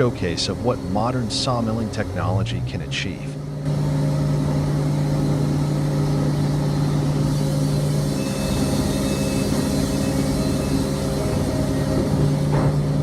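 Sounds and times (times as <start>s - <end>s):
sawmill motor humming: 0.0s - 13.0s.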